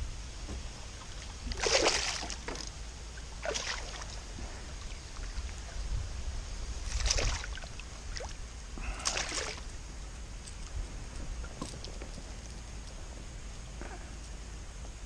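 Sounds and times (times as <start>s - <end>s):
steady low rumble: 0.0s - 15.0s
water splashes: 0.3s - 9.8s.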